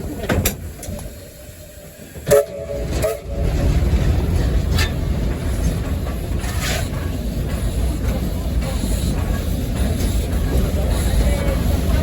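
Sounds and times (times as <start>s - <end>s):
locomotive rumble: 0.0s - 12.0s
steam whistle toot: 2.3s - 3.4s.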